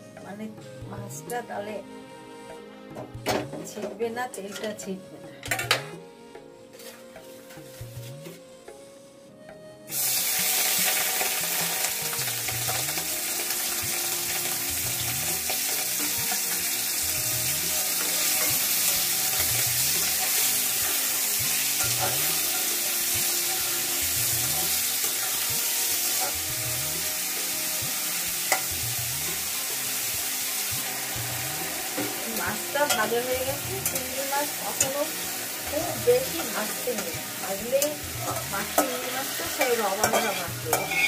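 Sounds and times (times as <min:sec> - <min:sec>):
steel spatula scraping pan: 0:06.8 - 0:07.8, 0:37.8 - 0:41.0
prawns sizzling in hot oil: 0:09.9 - 0:41.0.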